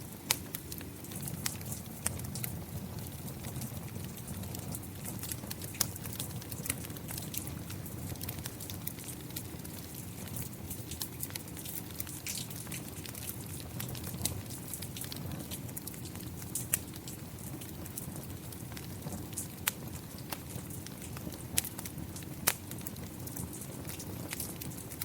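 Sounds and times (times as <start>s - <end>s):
fire crackling and popping: 0.0s - 25.0s.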